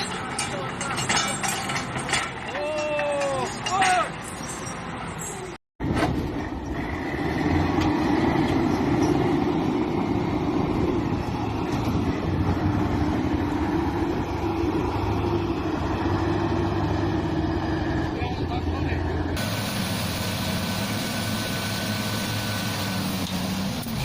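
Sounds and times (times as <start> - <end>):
tractor engine running: 6.1 - 24.0.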